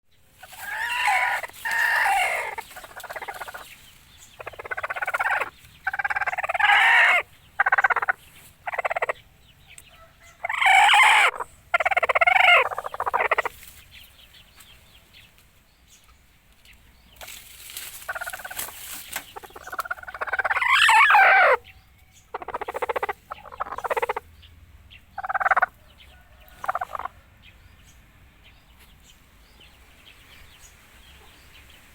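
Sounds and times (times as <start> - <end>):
chickens clucking: 0.3 - 15.4, 16.0 - 31.9
rooster crowing: 0.6 - 3.3, 9.9 - 13.4, 20.1 - 21.6, 25.2 - 27.5.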